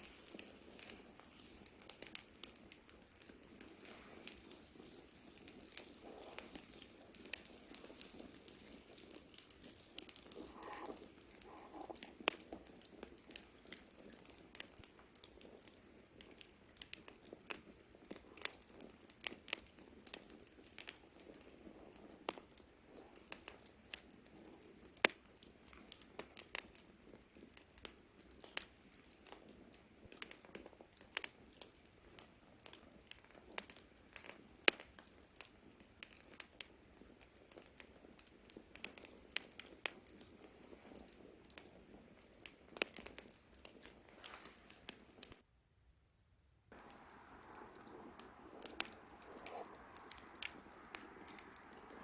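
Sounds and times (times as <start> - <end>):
soft rush of flame: 0.0 - 23.9, 38.8 - 45.4, 46.7 - 52.0
campfire crackling: 0.0 - 45.4, 46.7 - 52.0.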